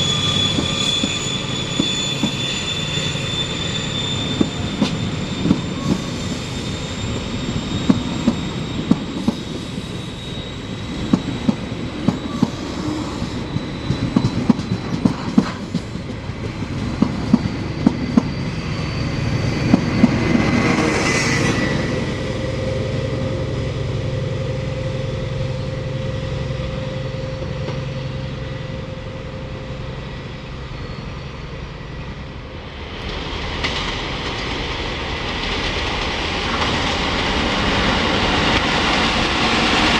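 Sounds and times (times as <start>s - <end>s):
train wheels clicking over rail joints: 7.8s - 9.6s, 13.2s - 18.4s.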